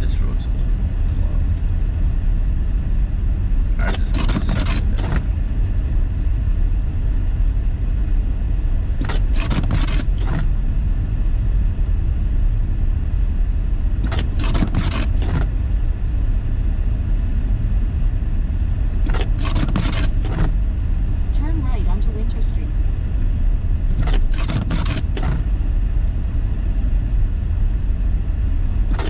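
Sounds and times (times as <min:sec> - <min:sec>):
car engine and tyre rumble: 0:00.0 - 0:29.0
rapid ticking or scraping: 0:03.8 - 0:05.3, 0:09.0 - 0:10.5, 0:14.0 - 0:15.5, 0:19.1 - 0:20.6, 0:23.9 - 0:25.5.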